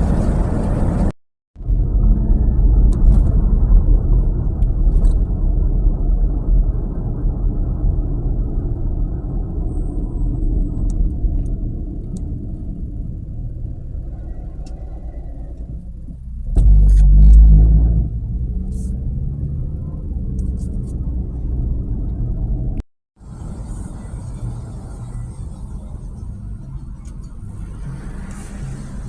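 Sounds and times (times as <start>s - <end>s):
vehicle road and engine rumble: 0.0s - 29.0s.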